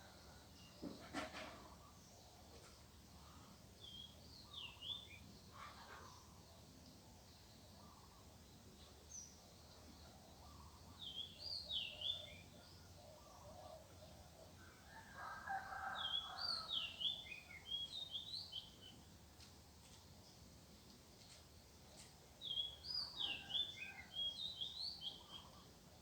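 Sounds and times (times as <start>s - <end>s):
rooster crowing: 14.9s - 16.8s.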